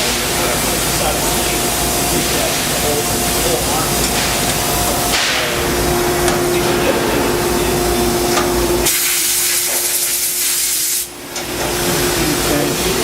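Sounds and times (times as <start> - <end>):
coolant spraying hiss: 0.0 - 5.8, 6.5 - 13.0
machine spindle tone and rumble: 0.1 - 8.9.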